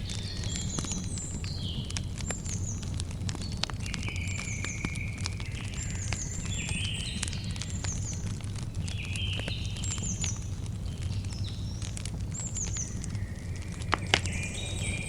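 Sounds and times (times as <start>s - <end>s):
campfire crackling and popping: 0.0s - 15.0s
bird chirping: 8.9s - 15.0s.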